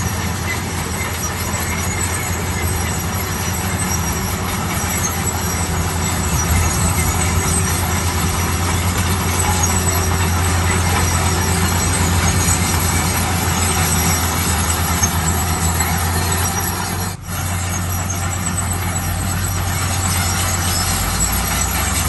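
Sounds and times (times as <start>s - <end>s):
bulldozer diesel engine running: 0.0s - 22.0s.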